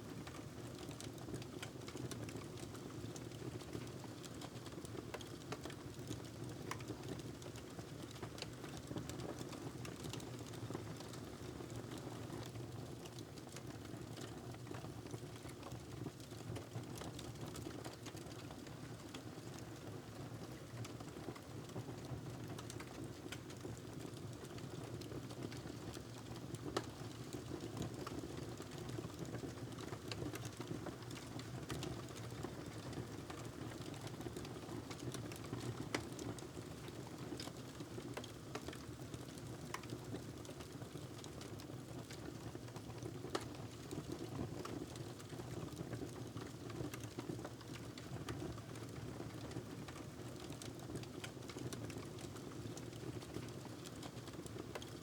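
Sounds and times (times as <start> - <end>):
wood fire crackling and popping: 22.4 - 55.0.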